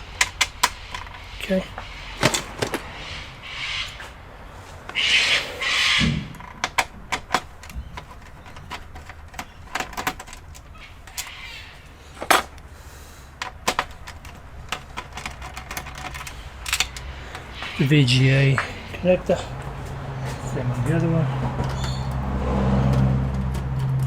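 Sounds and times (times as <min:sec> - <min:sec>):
computer parts clicking and knocking: 0:00.0 - 0:01.4, 0:02.2 - 0:03.1, 0:06.0 - 0:11.4, 0:13.3 - 0:17.6.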